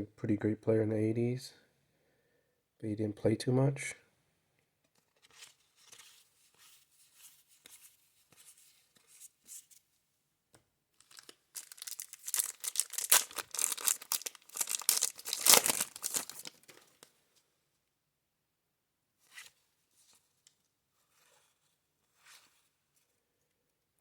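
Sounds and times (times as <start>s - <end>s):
wrapper tearing and crinkling: 11.0s - 16.8s.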